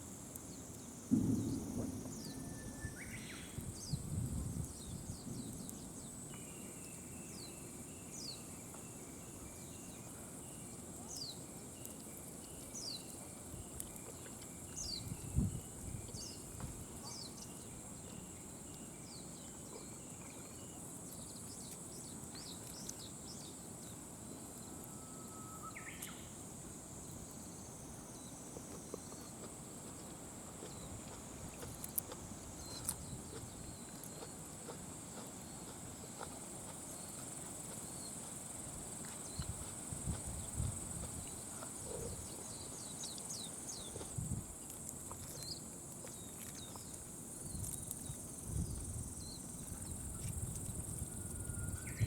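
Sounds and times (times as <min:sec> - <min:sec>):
insects trilling: 0:00.0 - 0:52.0
dull low thuds: 0:01.1 - 0:05.0
pulsing insect call: 0:49.2 - 0:52.0.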